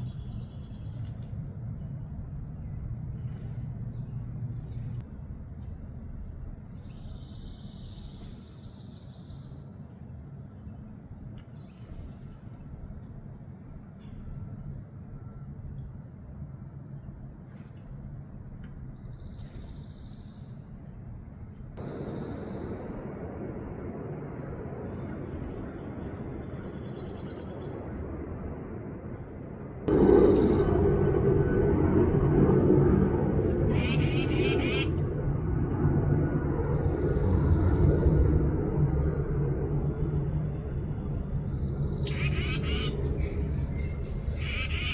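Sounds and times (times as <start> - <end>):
low background rumble: 0.0 - 44.9
faint high bird chirps: 6.7 - 10.8, 41.3 - 44.9
songbird trilling: 33.7 - 34.9, 41.8 - 44.9.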